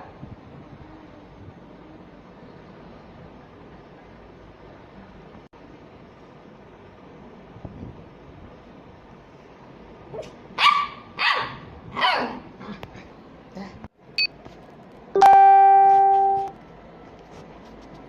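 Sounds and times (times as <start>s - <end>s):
dog yelping: 10.1s - 12.4s
small dog barking: 10.1s - 12.5s.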